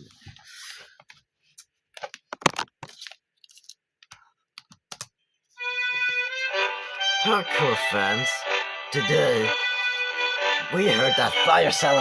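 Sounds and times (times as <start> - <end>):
objects being handled: 0.0 - 5.1.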